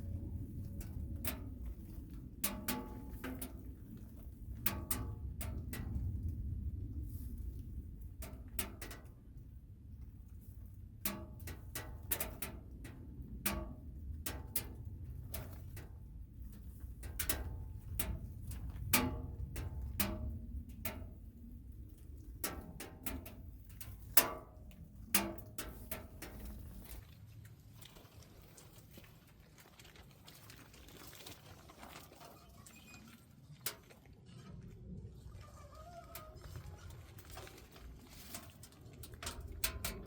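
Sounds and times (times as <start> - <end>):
firewood crackling and popping: 0.0 - 9.4, 10.0 - 27.0, 37.5 - 40.0
stove low rumble: 0.0 - 27.6, 37.7 - 40.0.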